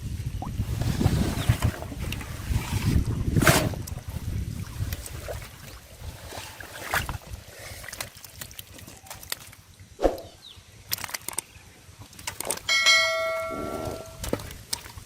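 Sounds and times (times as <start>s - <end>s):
bell-like ring: 12.7s - 14.2s.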